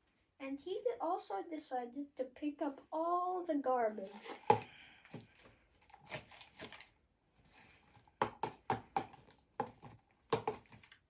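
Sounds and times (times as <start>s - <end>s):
sharp taps and knocks: 8.2s - 10.8s.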